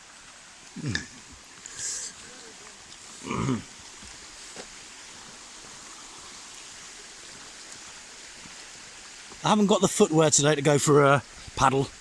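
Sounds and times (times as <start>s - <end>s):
shallow stream flowing: 0.0s - 12.0s.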